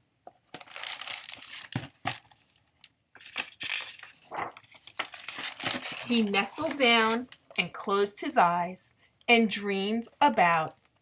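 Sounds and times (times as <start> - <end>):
paper rustling and crinkling: 0.5 - 2.6, 3.2 - 7.4.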